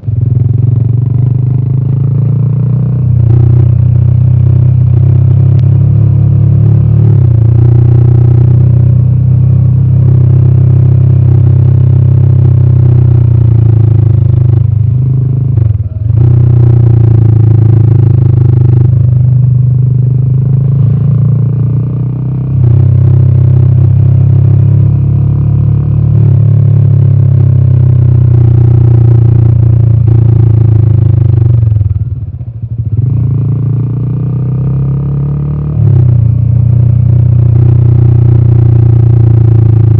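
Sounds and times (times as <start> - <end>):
motorcycle engine deep exhaust: 0.0 - 39.9.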